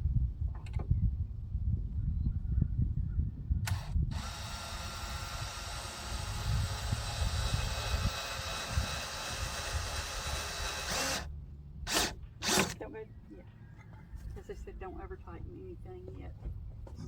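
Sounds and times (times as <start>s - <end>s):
cordless drill driving screw: 3.7s - 11.3s, 11.9s - 12.8s.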